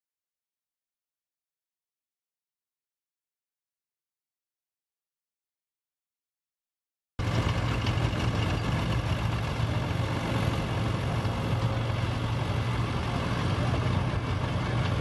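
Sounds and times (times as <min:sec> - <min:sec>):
engine humming: 0:07.2 - 0:15.0.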